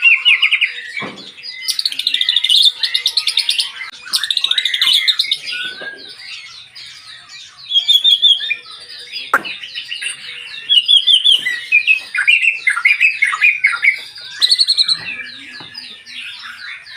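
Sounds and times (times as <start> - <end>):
bird singing whistles and trills: 0.0 - 16.9.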